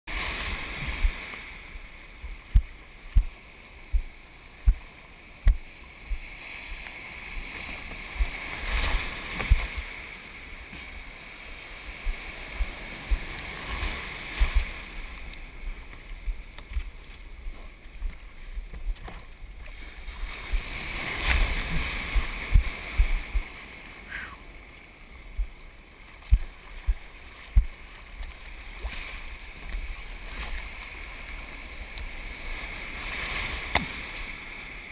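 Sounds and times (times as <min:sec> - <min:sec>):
water rushing around a kayak: 0:00.1 - 0:34.9
low thumps: 0:02.2 - 0:06.2, 0:25.4 - 0:25.6.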